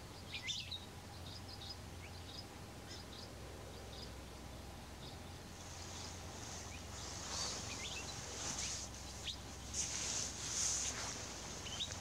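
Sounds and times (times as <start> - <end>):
steady high hiss: 4.0 - 12.0
birds chirping: 5.0 - 12.0.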